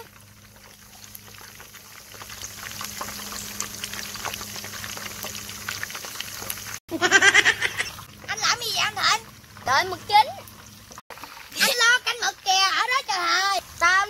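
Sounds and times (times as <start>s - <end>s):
squid deep-frying in oil: 0.0s - 14.0s
loud child's voice: 8.3s - 10.4s, 11.6s - 14.0s.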